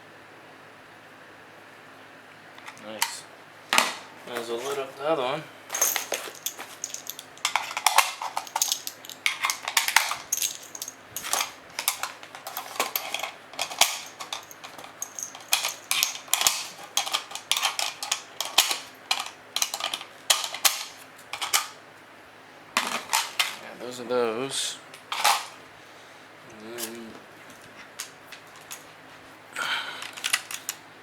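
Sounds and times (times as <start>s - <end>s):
metal cartridges clinking: 5.7s - 21.8s, 22.8s - 23.8s, 25.1s - 25.6s, 27.5s - 28.9s, 30.0s - 30.8s.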